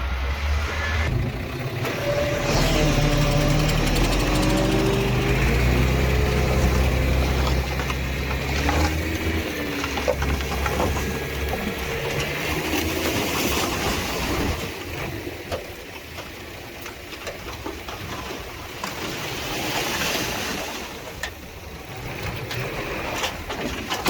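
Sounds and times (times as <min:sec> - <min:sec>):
steady rushing noise: 0:00.0 - 0:09.7
diesel engine of heavy machinery: 0:00.0 - 0:15.4.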